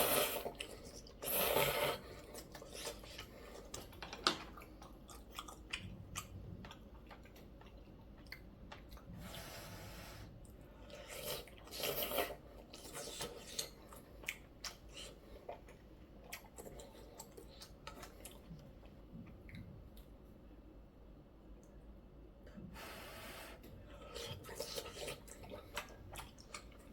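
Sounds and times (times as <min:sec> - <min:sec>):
slurping noodle soup: 0:00.0 - 0:03.7, 0:09.1 - 0:14.0, 0:22.6 - 0:26.7
wet chewing clicks: 0:02.3 - 0:09.1, 0:24.2 - 0:26.9.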